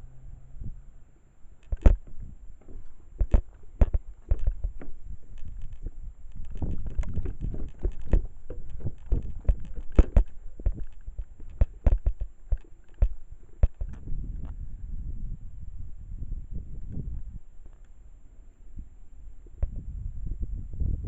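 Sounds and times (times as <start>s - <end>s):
wind rumbling on microphone: 0.0s - 1.0s, 1.6s - 21.0s
irregular clicks and thumps: 1.6s - 14.6s.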